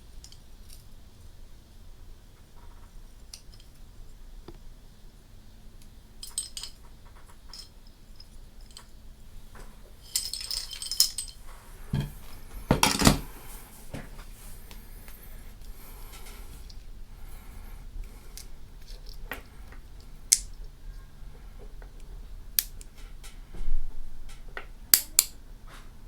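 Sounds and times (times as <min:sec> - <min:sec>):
metal parts clinking and clicking: 0:06.2 - 0:09.0, 0:10.0 - 0:13.3.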